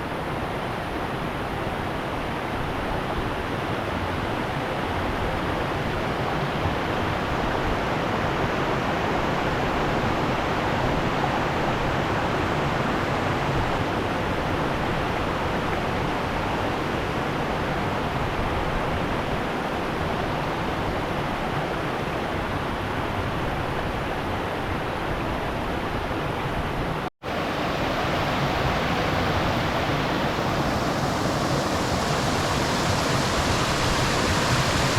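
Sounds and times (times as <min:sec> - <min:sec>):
river water rushing: 0:27.2 - 0:34.9.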